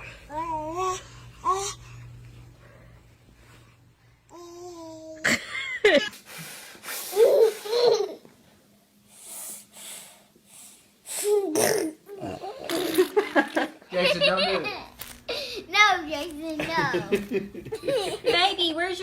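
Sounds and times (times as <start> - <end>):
baby laughing and vocalising: 7.1 - 8.3, 11.2 - 13.5.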